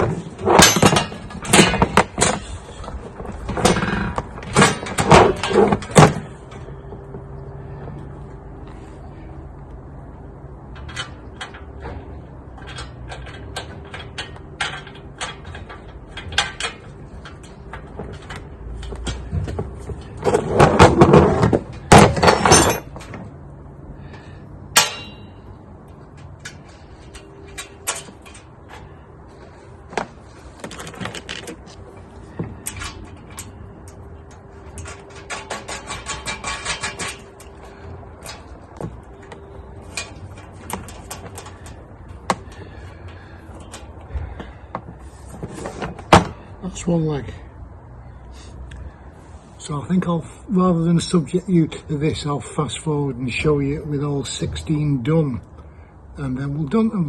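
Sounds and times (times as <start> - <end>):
loud metal clatter: 0.0 - 6.4, 32.6 - 38.6
metal parts clinking: 0.0 - 6.7, 21.7 - 23.3, 30.5 - 44.1.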